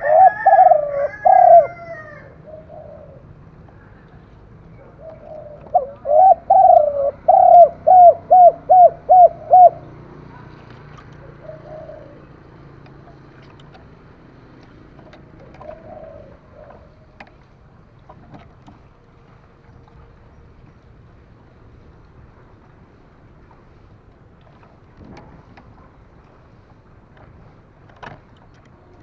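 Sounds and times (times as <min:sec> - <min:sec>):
dove cooing: 0:00.0 - 0:04.0, 0:04.7 - 0:13.5, 0:15.1 - 0:17.2.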